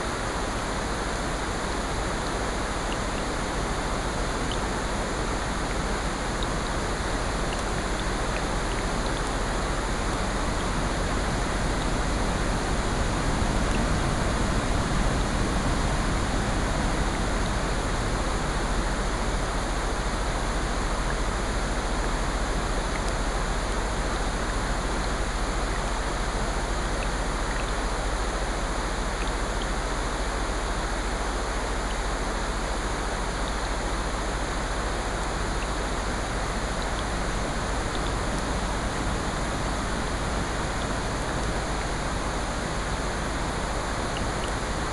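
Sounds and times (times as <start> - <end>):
ocean surf: 0.0 - 26.5, 33.0 - 44.9
steady rain: 0.0 - 44.9
faint ticks: 6.4 - 6.6, 26.9 - 27.8, 37.9 - 38.2.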